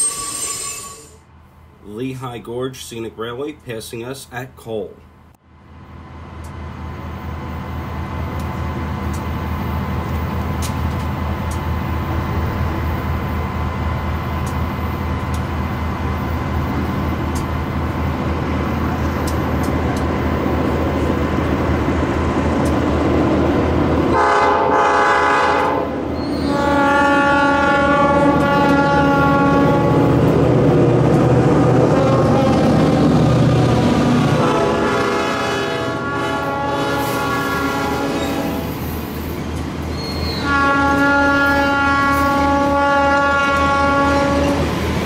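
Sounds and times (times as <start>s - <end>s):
diesel train engine drone: 0.0s - 45.0s
wheels clicking on rails: 14.2s - 23.1s
train air horn blasts: 24.1s - 30.2s, 34.2s - 38.8s, 40.2s - 44.7s.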